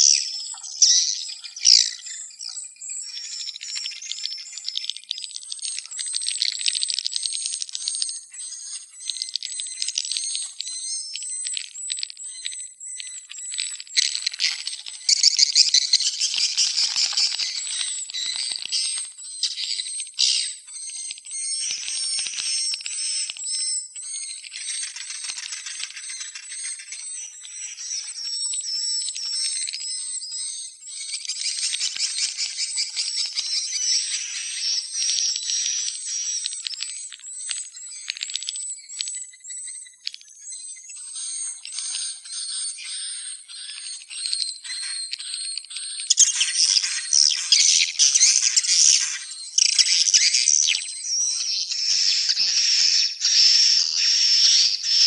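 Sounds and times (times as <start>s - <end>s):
swiftlets chirping and trilling: 40.7s - 55.0s.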